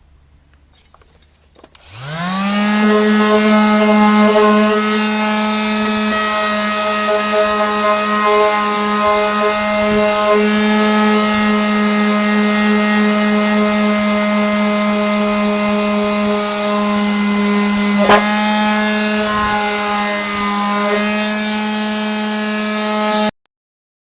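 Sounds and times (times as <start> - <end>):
electric sander on rusty steel: 1.7 - 23.3.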